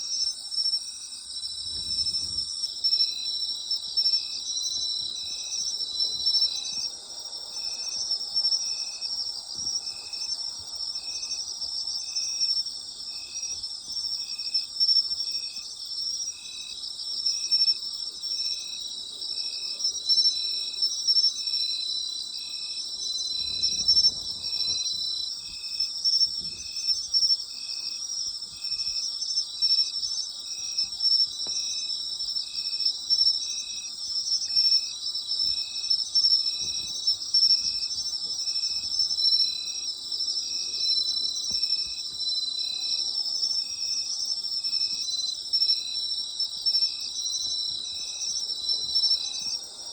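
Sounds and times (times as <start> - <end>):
crickets trilling: 0.0 - 49.9
insect chirping rhythmically: 0.0 - 49.9.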